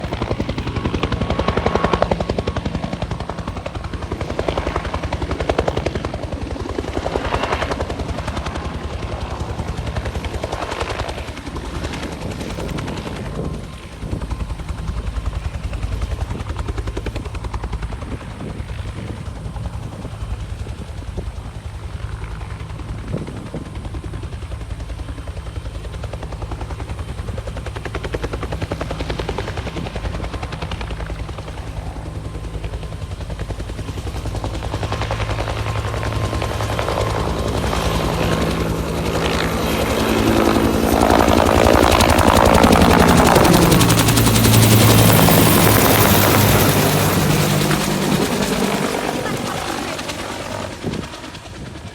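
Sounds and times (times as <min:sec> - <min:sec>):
helicopter rotor chopping: 0:00.0 - 0:51.9.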